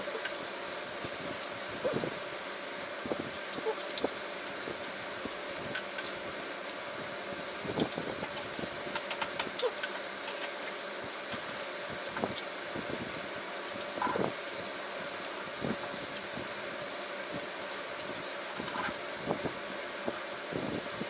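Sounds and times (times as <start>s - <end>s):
background hum and hiss: 0.0s - 21.0s.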